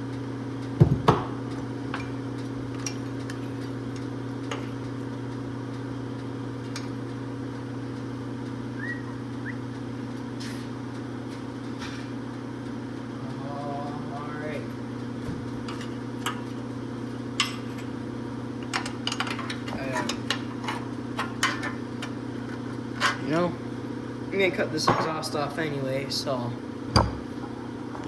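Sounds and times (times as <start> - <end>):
low electrical hum: 0.0 - 28.0
tools being handled: 18.6 - 21.8.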